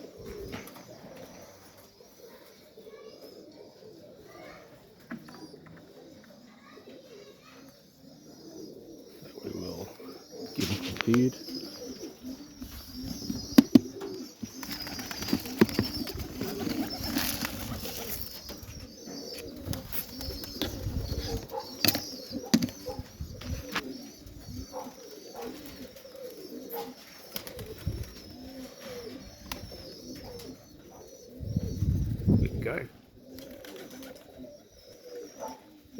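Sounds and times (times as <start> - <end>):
pigeons cooing: 0.0 - 35.9.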